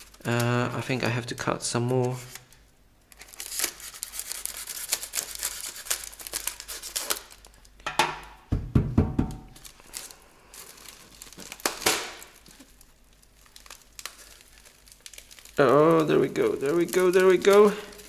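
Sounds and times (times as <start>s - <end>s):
rustling and crinkling: 0.0s - 7.8s, 9.3s - 18.0s
cardboard tearing: 3.2s - 7.4s
knife cutting packaging: 3.2s - 7.4s
low thumps: 8.3s - 9.6s.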